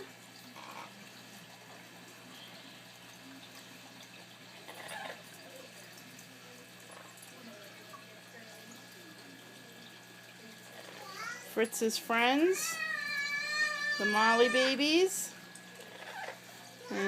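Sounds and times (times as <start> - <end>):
water trickling in aquarium filter: 0.0 - 17.0.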